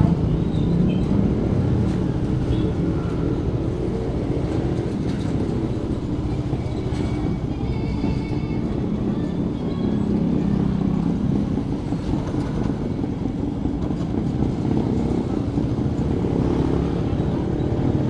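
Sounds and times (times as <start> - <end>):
motorcycle engine running: 8.7 - 18.0.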